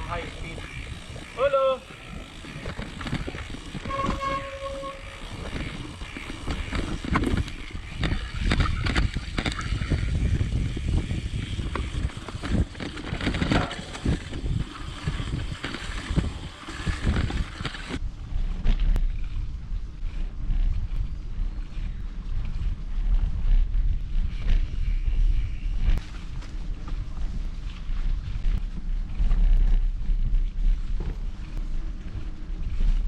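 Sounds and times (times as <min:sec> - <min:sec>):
tyres rumbling: 0:00.0 - 0:18.0
bike rattles and knocks: 0:00.0 - 0:33.0
wind on microphone: 0:00.0 - 0:33.0.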